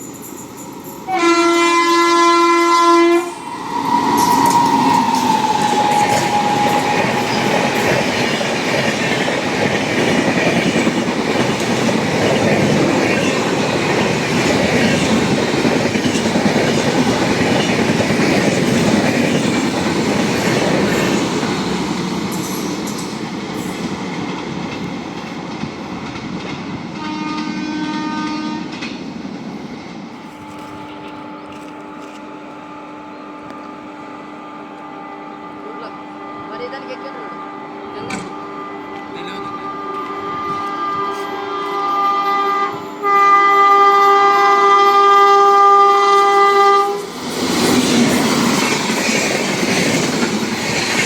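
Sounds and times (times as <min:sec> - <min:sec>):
train horn: 0:01.1 - 0:08.4, 0:27.0 - 0:28.8, 0:34.4 - 0:47.1
train wheels clattering on rails: 0:03.5 - 0:32.2, 0:47.0 - 0:51.0.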